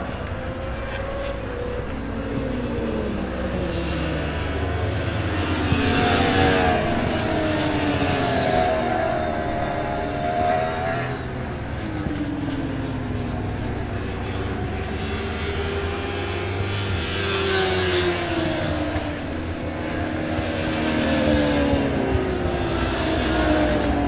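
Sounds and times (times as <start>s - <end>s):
racing motorcycles passing: 0.0s - 24.0s.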